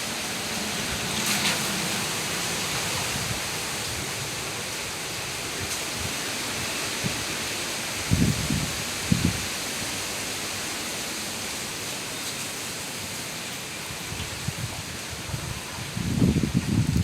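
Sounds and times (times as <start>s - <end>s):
gusty wind: 0.0s - 10.5s, 13.7s - 17.0s
heavy rain: 0.0s - 17.0s
wind buffeting microphone: 8.0s - 9.6s, 13.9s - 17.0s.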